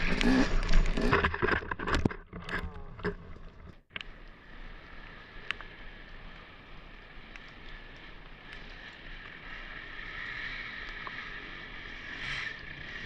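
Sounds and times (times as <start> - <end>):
dirt bike engine: 0.0 - 3.2, 8.0 - 13.0.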